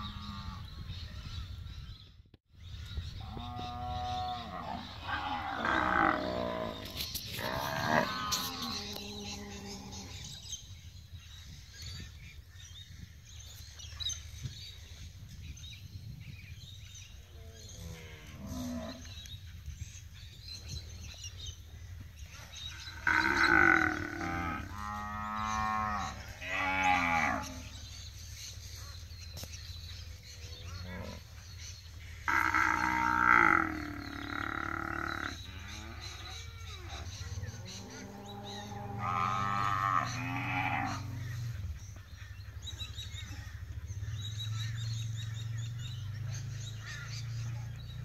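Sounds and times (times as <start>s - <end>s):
cattle mooing: 22.9s - 27.8s, 32.3s - 36.9s, 37.7s - 41.3s.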